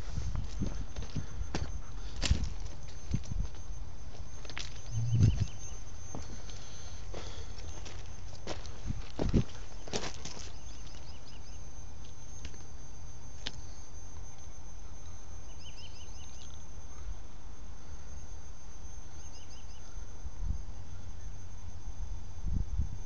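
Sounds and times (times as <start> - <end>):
steady low rumble: 0.0 - 9.8.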